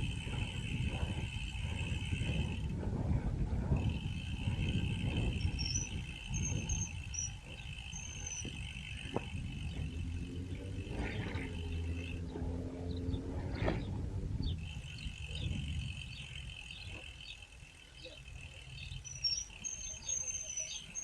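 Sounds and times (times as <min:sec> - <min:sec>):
low rumble: 0:00.0 - 0:17.0
low hum with steady tones: 0:00.0 - 0:21.0
insects trilling: 0:03.8 - 0:10.2, 0:14.6 - 0:21.0
bird chirps: 0:05.4 - 0:09.1, 0:14.4 - 0:21.0.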